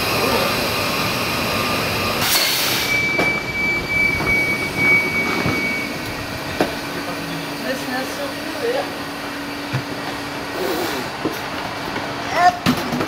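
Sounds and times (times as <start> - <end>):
station platform din: 0.0 - 8.7
steady high whine: 0.0 - 12.1.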